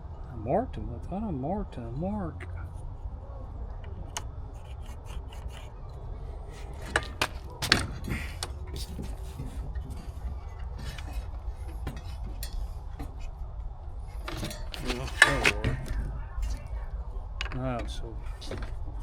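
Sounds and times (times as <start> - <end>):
steady low hum: 0.0 - 19.0
sharp wooden clacks: 6.5 - 9.1
wood scraping on board: 6.5 - 12.2
light wooden knocks: 6.5 - 13.2.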